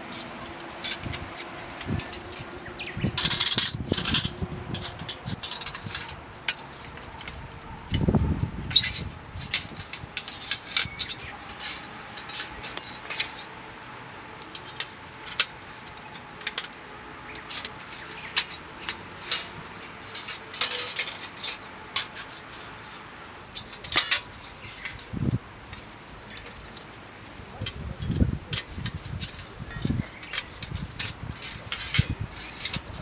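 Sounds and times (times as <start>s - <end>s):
metal camping gear clinking: 0.0s - 33.0s
metal gear scraping: 8.0s - 13.5s.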